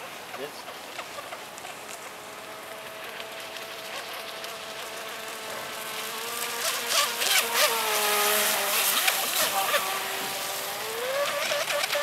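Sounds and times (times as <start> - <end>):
electric motor whine: 1.3 - 12.0
boat hull splashing: 3.4 - 12.0.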